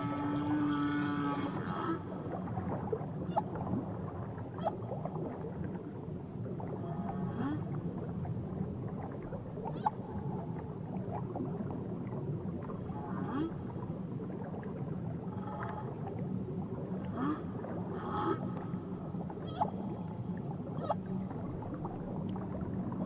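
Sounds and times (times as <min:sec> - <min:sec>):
whale squeals and moans: 0:00.0 - 0:02.4, 0:04.6 - 0:04.8, 0:17.2 - 0:18.5, 0:19.4 - 0:20.0, 0:20.8 - 0:21.1.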